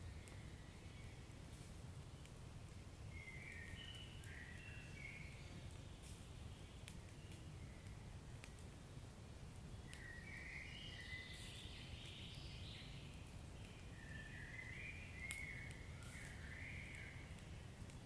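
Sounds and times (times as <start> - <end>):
wood fire crackling: 0.0 - 10.4, 11.3 - 18.0
low fire rumble: 0.0 - 18.0.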